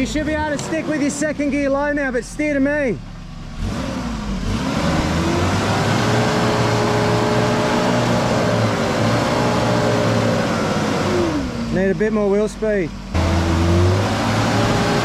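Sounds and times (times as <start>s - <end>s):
engine revving hard: 3.5s - 12.0s, 13.1s - 15.0s.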